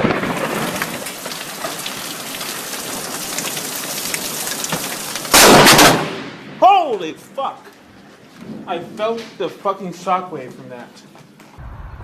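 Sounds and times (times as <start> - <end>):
loud thunder crack: 0.0 - 1.1, 5.3 - 6.6, 11.6 - 12.0
heavy rain: 0.0 - 6.8.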